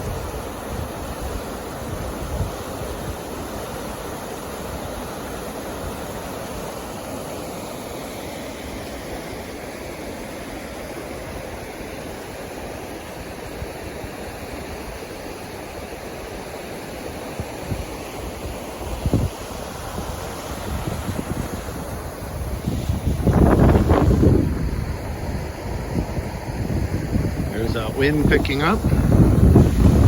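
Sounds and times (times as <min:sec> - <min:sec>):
waterfall roaring: 0:14.5 - 0:30.0
wind thumps on microphone: 0:18.9 - 0:30.0.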